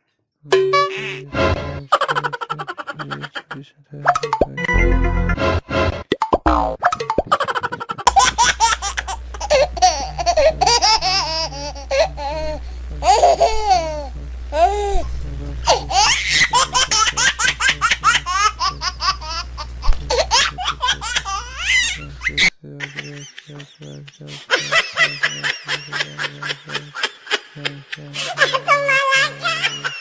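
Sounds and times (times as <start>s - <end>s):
steady low hum: 0.6s - 30.0s
high-pitched laughter: 1.9s - 3.6s, 7.2s - 15.1s, 15.7s - 30.0s.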